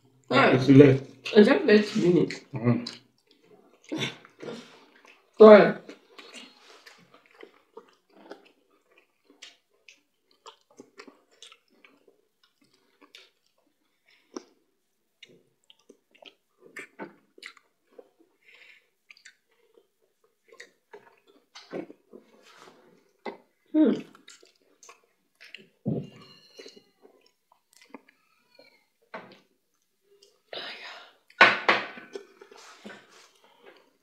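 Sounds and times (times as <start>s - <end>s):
soft chewing: 1.9s - 30.5s, 32.0s - 34.0s
wet mouth clicks and smacks: 19.1s - 19.4s, 24.0s - 25.7s.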